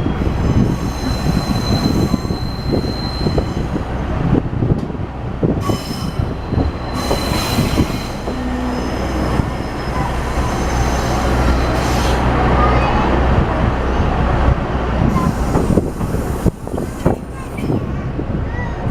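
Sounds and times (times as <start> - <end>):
train wheels squealing: 0.2 - 3.9, 5.5 - 12.9.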